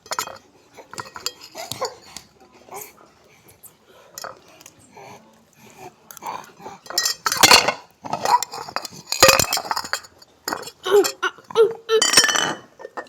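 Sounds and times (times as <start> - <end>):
cutlery and dishes clinking: 0.0 - 2.3, 6.8 - 11.3, 12.0 - 13.0.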